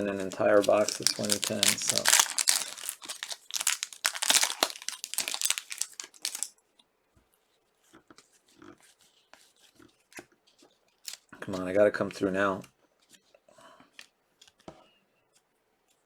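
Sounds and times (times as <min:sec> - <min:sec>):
card pack wrapper torn and crinkled: 0:00.0 - 0:06.5, 0:11.1 - 0:11.3
cards being handled: 0:00.0 - 0:06.5.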